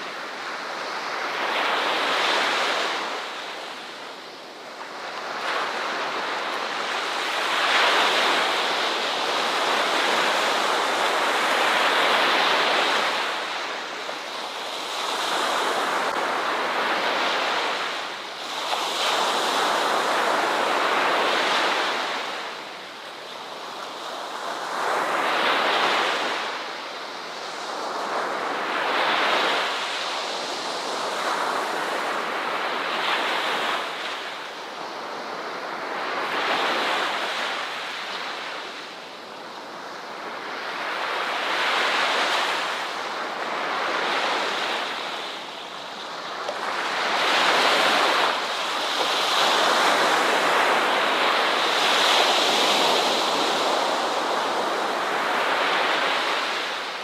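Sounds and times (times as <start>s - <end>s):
ocean waves breaking: 27.5s - 57.0s.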